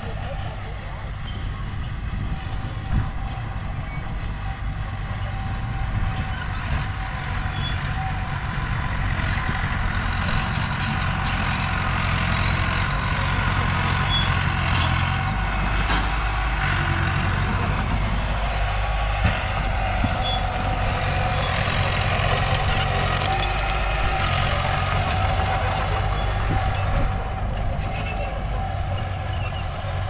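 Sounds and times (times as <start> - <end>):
heavy diesel engines under load: 0.0 - 30.0.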